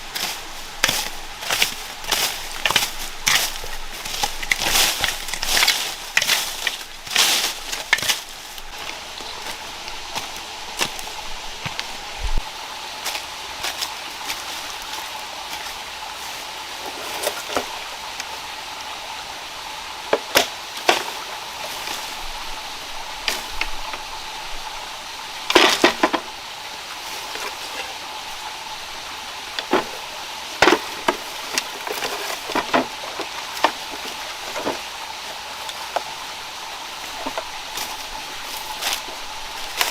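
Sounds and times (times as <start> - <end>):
wood being chopped: 30.6 - 34.8.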